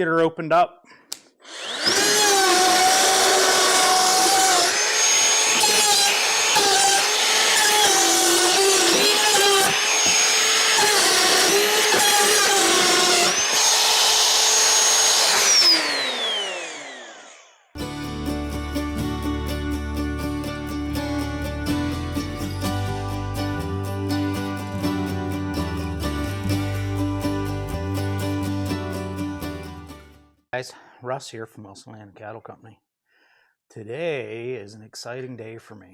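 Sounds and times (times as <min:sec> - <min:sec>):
power tool motor whine: 0:01.4 - 0:18.2.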